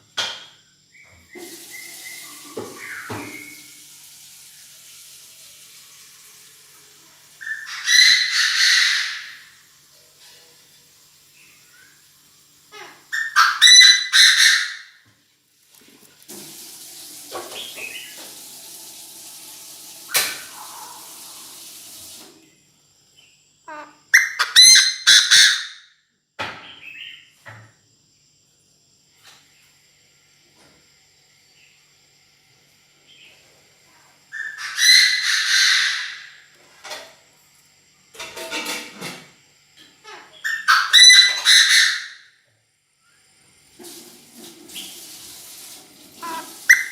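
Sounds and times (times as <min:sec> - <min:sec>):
steady hiss: 0:01.3 - 0:07.5, 0:09.3 - 0:13.1, 0:15.2 - 0:23.1, 0:43.0 - 0:46.9
bird calling harshly: 0:07.4 - 0:09.5, 0:12.8 - 0:15.0, 0:46.2 - 0:46.9
francolin calling: 0:12.7 - 0:15.0.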